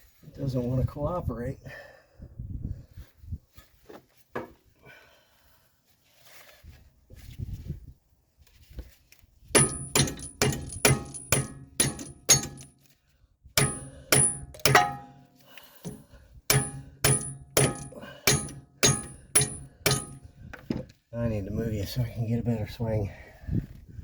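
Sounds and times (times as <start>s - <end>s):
hammer striking metal: 9.6s - 12.7s, 13.6s - 20.3s.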